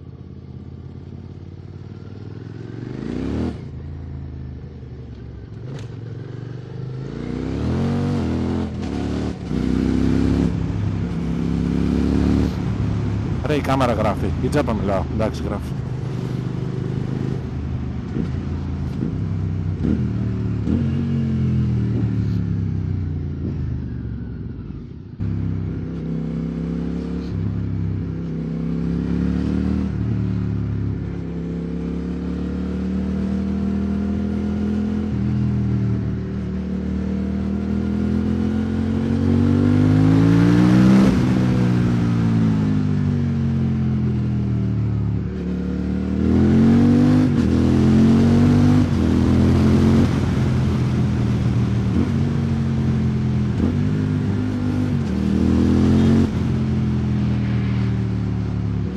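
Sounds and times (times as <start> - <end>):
motorcycle engine while riding: 0.0 - 58.9.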